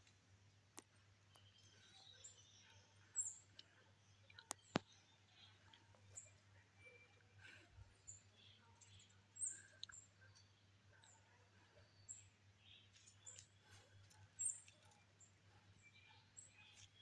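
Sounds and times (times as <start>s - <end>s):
faint high bird chirps: 1.3s - 17.0s.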